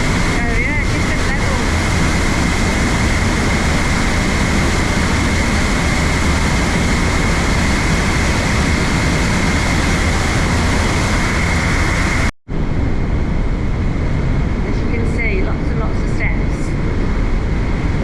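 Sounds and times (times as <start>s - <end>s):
waterfall roaring through gorge: 0.0s - 12.3s.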